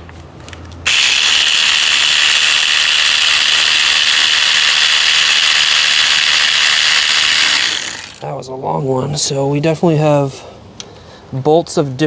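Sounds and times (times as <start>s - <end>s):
power ratchet spinning: 0.5s - 8.3s.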